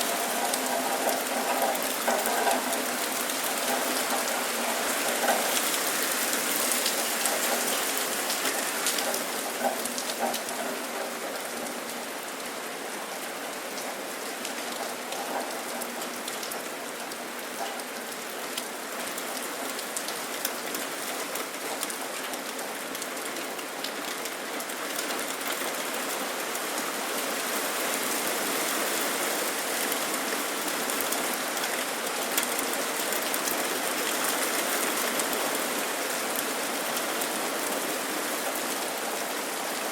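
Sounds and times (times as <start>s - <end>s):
sharp ticks of raindrops: 0.0s - 39.9s
steady rain falling: 0.0s - 39.9s.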